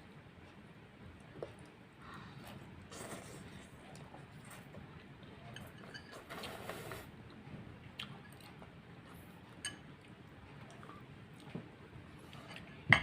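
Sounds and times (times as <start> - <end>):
quiet chewing: 0.4 - 12.9
slurping noodles: 6.3 - 7.1.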